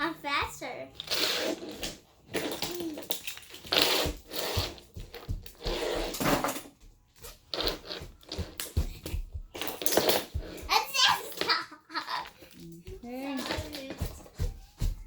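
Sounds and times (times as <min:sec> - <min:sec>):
toy train pieces rubbing and scraping: 0:01.0 - 0:06.6, 0:09.6 - 0:12.2.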